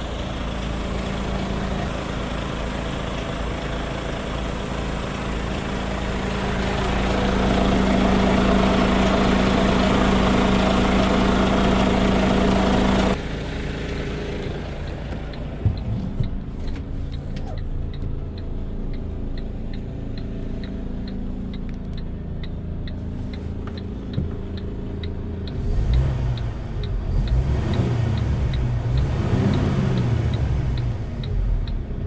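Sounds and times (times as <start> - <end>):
diesel truck engine idling: 0.0 - 32.0
light regular ticking: 13.8 - 32.0.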